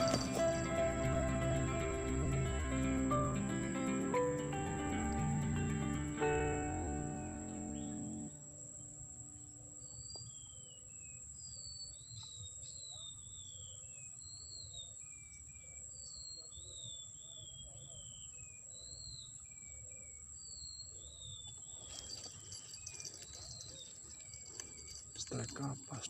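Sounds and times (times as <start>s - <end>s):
high insect drone: 0.0s - 11.1s.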